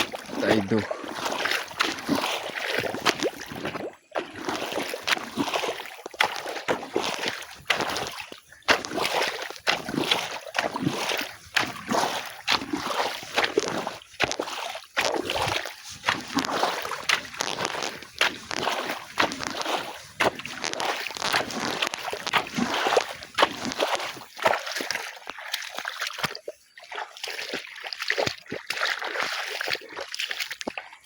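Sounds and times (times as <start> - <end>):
hand tool digging wet soil: 0.0 - 30.9
water splashing and sloshing: 0.0 - 31.0.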